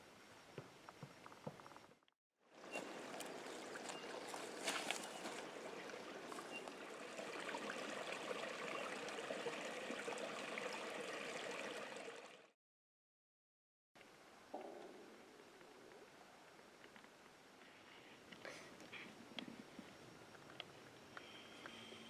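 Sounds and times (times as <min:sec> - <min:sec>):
rushing stream water: 0:02.6 - 0:12.6
faint ticks: 0:16.8 - 0:21.8.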